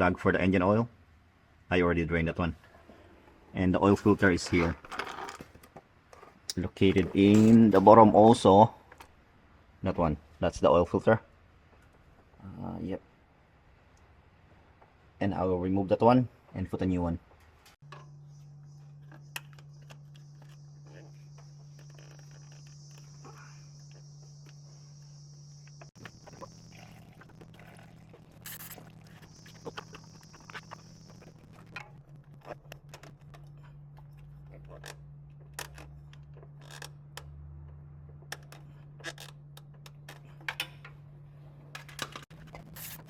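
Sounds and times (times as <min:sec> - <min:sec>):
crickets chirring: 0:17.8 - 0:32.6.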